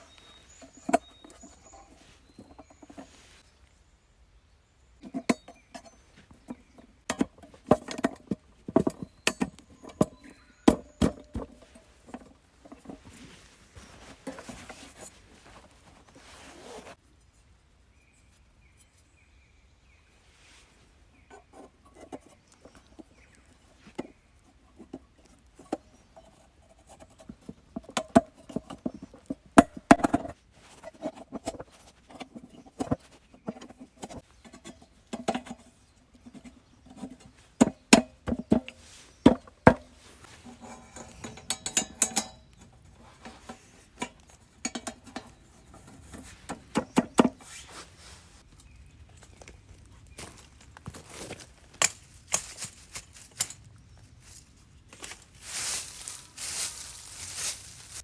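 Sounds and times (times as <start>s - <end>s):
rustling: 0.0s - 3.8s, 5.6s - 19.1s, 20.1s - 58.0s.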